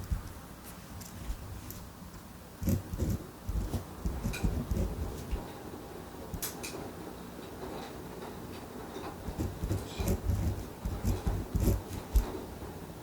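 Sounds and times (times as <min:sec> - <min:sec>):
pen and paper handled: 0:09.3 - 0:12.3.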